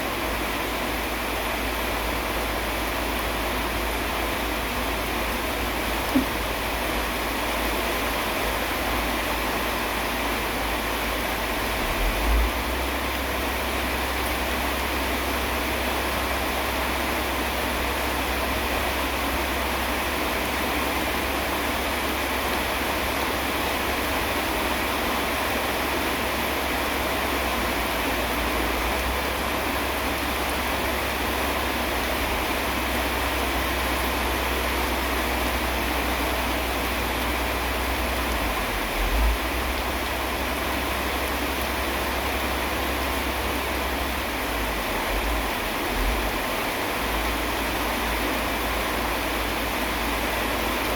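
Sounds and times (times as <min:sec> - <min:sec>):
steady rain hiss: 0:00.0 - 0:50.9
brief low thump: 0:06.1 - 0:06.4.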